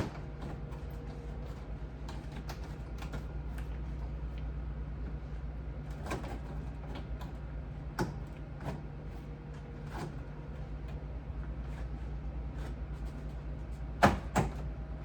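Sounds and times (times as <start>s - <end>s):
refrigerator parts knocking and clicking: 0.0s - 4.4s, 5.9s - 11.0s, 12.5s - 14.8s
steady low hum: 0.0s - 15.0s.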